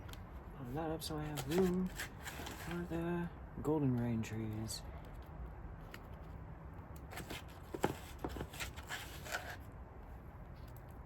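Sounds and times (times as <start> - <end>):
plant pots rustling: 0.0 - 3.1, 7.1 - 9.7.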